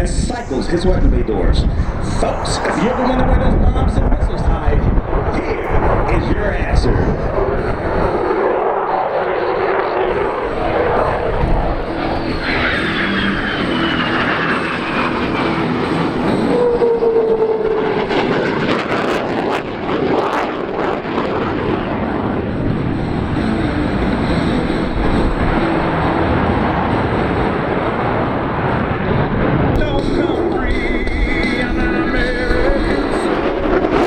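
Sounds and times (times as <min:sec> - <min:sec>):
whining tones falling in pitch: 0:00.0 - 0:18.9
jet flying past: 0:00.0 - 0:34.0.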